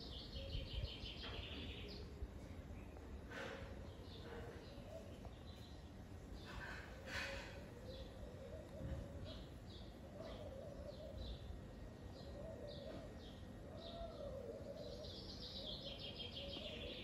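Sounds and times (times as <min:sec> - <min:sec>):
birds chirping and twittering: 0:00.0 - 0:17.0.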